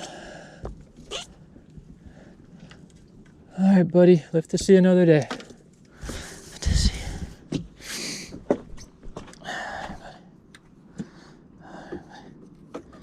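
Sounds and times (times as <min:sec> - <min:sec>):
person breathing hard: 0:00.0 - 0:00.8, 0:06.0 - 0:08.4, 0:09.4 - 0:12.4.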